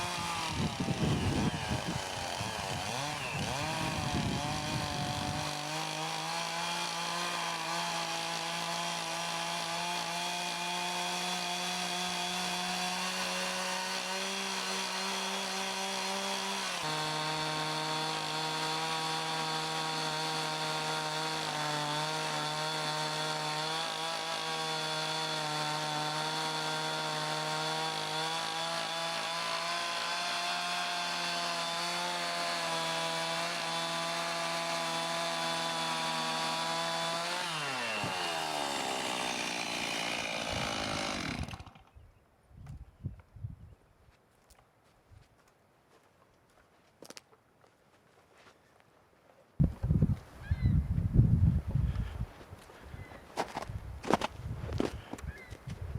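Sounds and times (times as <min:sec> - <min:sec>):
chainsaw cutting through log: 0:00.0 - 0:42.0.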